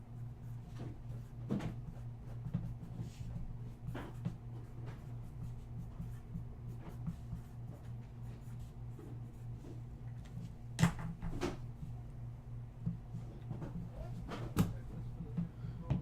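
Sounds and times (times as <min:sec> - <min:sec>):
low electrical hum: 0:00.0 - 0:16.0
rubbing and light taps on table: 0:00.7 - 0:05.2.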